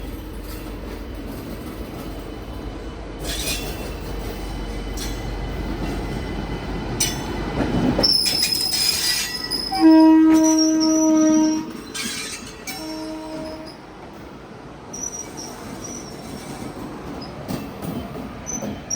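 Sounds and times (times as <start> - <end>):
train wheels clattering: 3.2 - 14.3, 14.9 - 18.9
high flange squeal: 8.0 - 13.8
locomotive horn blast: 9.7 - 11.9, 12.7 - 13.8.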